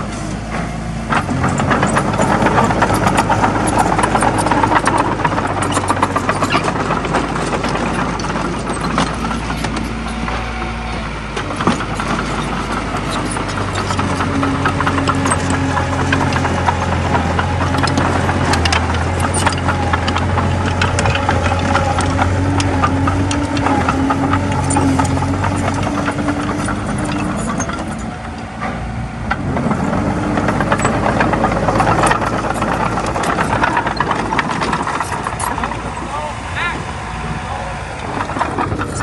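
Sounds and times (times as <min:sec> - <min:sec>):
bulldozer diesel engine: 0:00.0 - 0:39.0
steel tracks rattling and clanking: 0:00.0 - 0:39.0.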